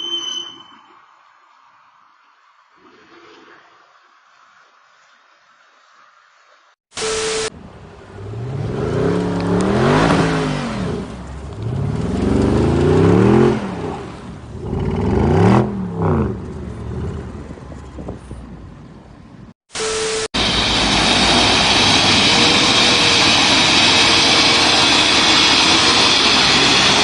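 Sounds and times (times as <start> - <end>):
engine revving: 7.0 - 17.5, 20.3 - 27.0.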